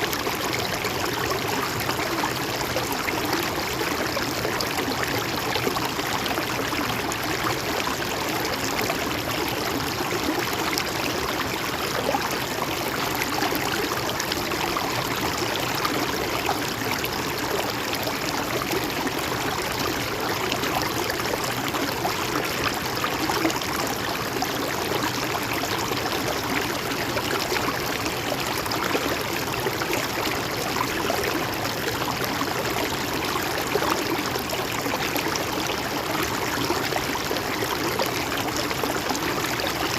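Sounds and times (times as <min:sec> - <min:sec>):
stream water rushing over rocks: 0:00.0 - 0:39.9.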